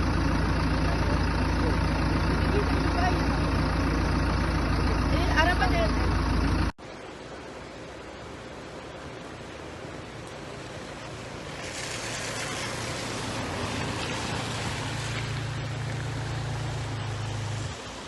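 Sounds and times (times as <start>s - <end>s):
vehicle engine humming: 0.0s - 7.3s, 8.0s - 18.0s
rushing hiss: 10.5s - 18.0s.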